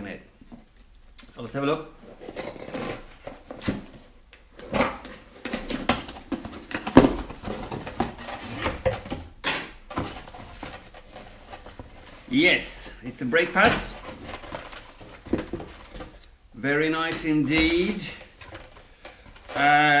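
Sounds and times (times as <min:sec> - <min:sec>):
tape ripping: 0:02.0 - 0:03.6
packaging rustling and crackling: 0:09.8 - 0:12.4, 0:13.0 - 0:16.4.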